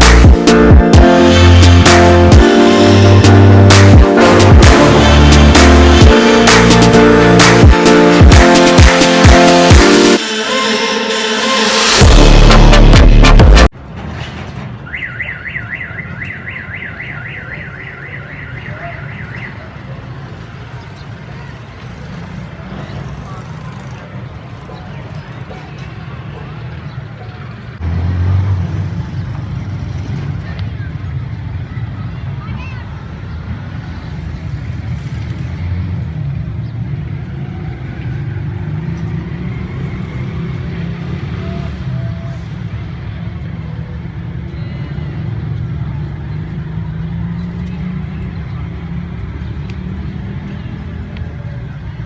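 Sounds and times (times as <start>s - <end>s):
electronic music: 0.0s - 13.7s.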